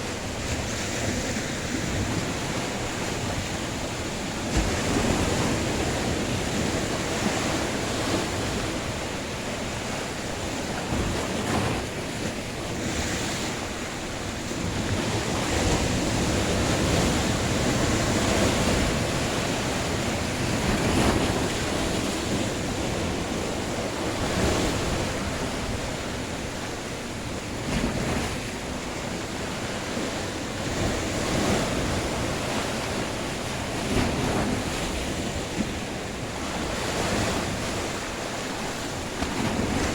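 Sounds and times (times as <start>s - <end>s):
waves breaking on shore: 0.0s - 39.9s
wind buffeting microphone: 0.0s - 39.9s.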